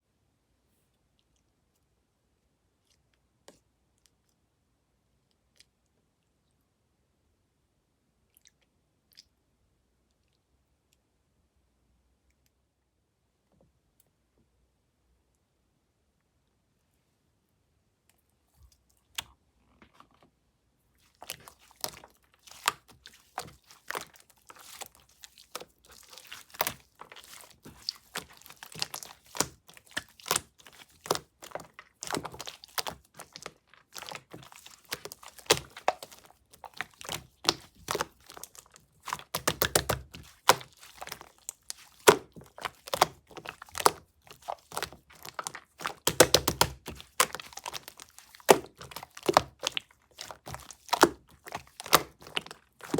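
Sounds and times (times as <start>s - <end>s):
slime crackling and popping: 21.1s - 52.9s.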